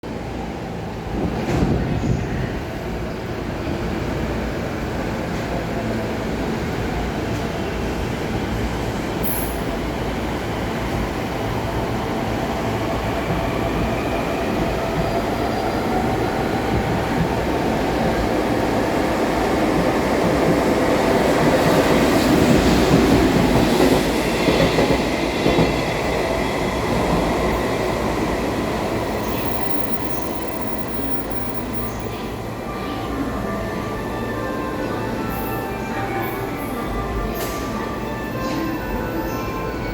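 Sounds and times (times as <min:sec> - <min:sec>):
train wheels rumbling on rail: 0:00.7 - 0:32.6.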